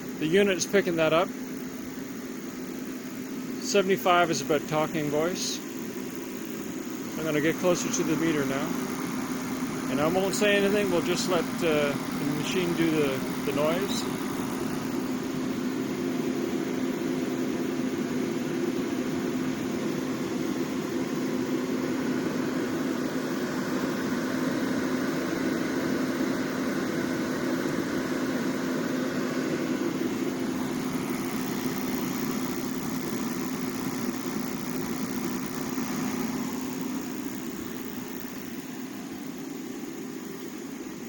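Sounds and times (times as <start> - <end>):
propane heater burner and fan: 0.0 - 41.0.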